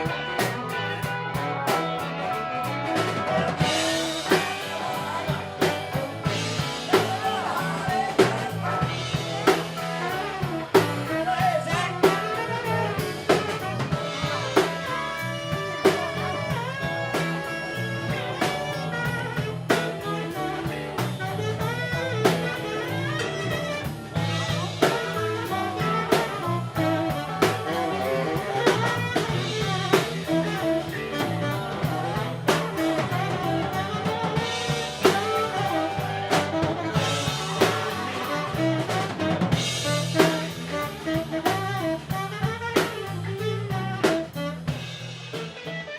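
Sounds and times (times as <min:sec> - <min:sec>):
bass line: 0:00.0 - 0:45.9
drum kit beat: 0:00.0 - 0:45.9
live blues jazz band: 0:00.0 - 0:45.9.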